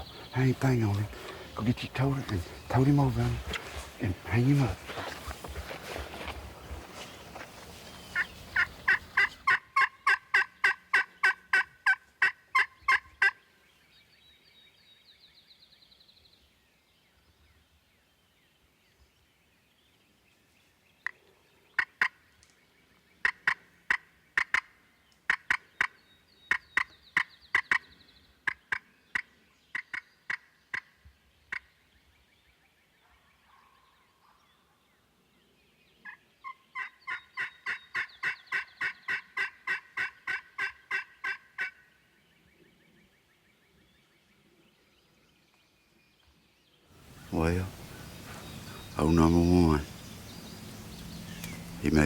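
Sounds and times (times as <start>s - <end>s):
turkey yelping: 8.2s - 13.3s, 36.4s - 41.8s
high bird trill: 47.0s - 52.0s.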